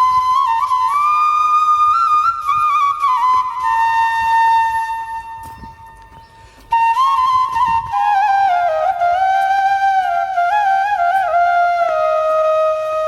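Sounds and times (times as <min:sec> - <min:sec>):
flute-like wind instrument melody: 0:00.0 - 0:13.0.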